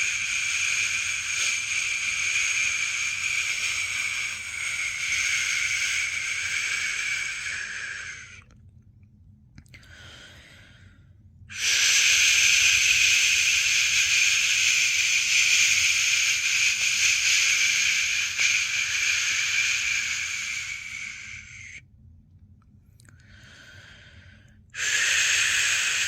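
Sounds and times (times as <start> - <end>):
person shushing: 0.0 - 8.4, 11.5 - 21.8.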